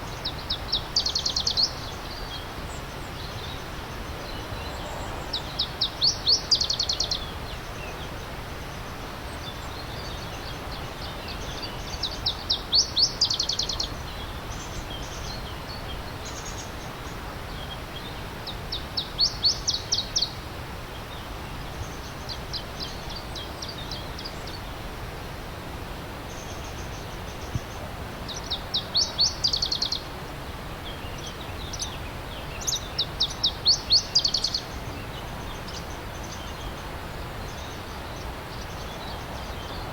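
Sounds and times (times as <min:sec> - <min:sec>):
songbird singing rapid trills: 0:00.0 - 0:08.2, 0:09.3 - 0:16.8, 0:26.3 - 0:30.1, 0:30.8 - 0:39.9
stream rushing: 0:00.0 - 0:19.6, 0:22.5 - 0:39.9.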